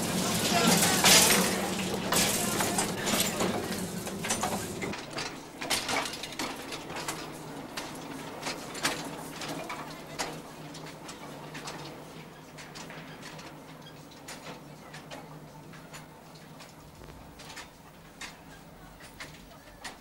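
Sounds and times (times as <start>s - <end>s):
train wheels clicking on track: 0.0s - 11.9s.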